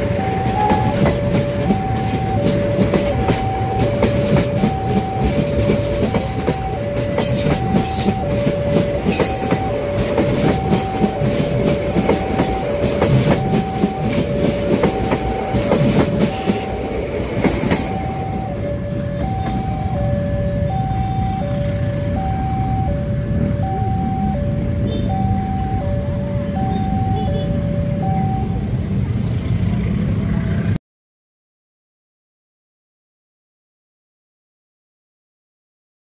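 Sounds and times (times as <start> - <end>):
wheel clatter over rail joints: 0.0 - 19.8
two-tone level crossing alarm: 0.0 - 28.8
train coaches rumbling past: 0.0 - 30.8.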